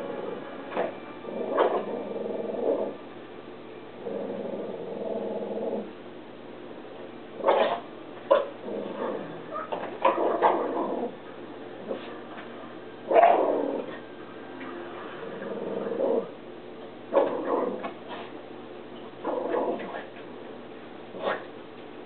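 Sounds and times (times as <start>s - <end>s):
dog barking and whining: 0.7s - 3.0s, 7.4s - 11.2s, 13.1s - 14.1s.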